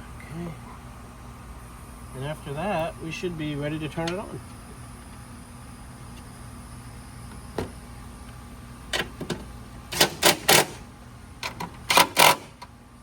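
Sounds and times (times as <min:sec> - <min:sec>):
mechanical clicking and rattling: 0:09.9 - 0:10.8, 0:11.4 - 0:12.7.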